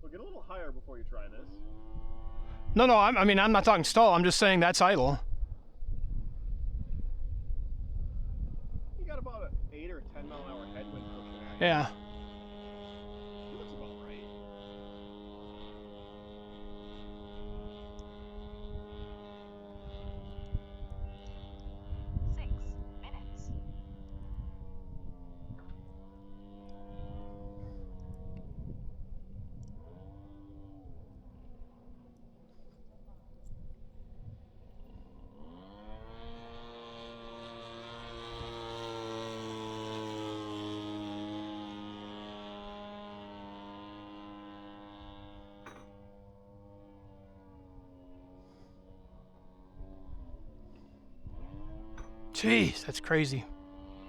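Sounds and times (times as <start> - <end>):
model plane engine running: 0.0 - 54.0
wind on microphone: 5.2 - 10.2.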